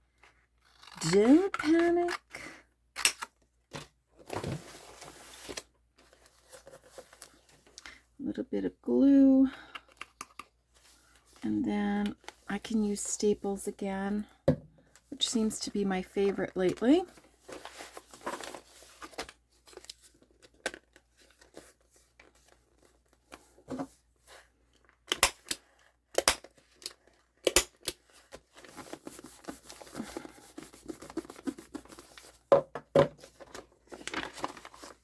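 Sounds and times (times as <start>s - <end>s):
paper rustling and crinkling: 3.7s - 7.8s, 16.2s - 24.5s, 28.0s - 32.5s, 33.2s - 35.0s.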